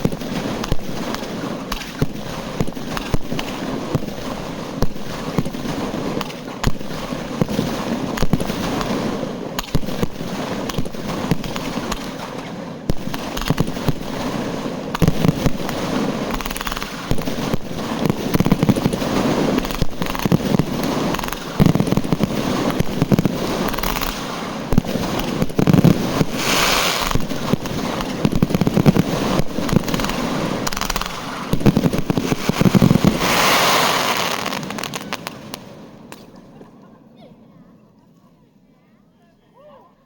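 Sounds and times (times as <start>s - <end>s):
fireworks bangs and crackling: 0.0s - 36.3s.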